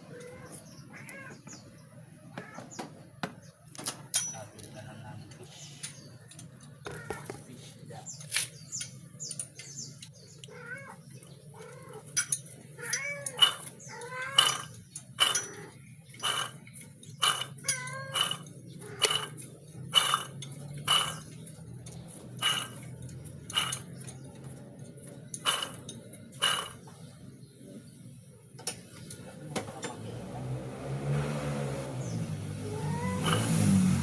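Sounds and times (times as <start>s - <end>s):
sharp metallic clinks: 4.1s - 4.6s, 12.1s - 24.3s
car engine humming: 14.4s - 26.8s, 30.0s - 34.0s.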